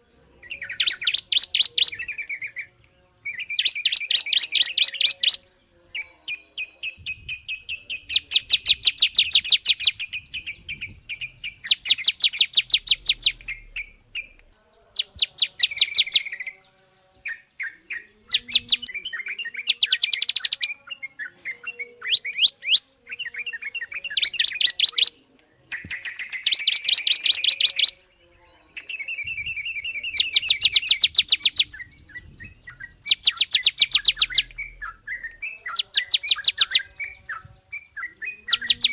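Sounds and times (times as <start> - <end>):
soft bird chirps: 0.0 - 38.9
songbird fast trills: 0.4 - 14.4, 28.8 - 38.9.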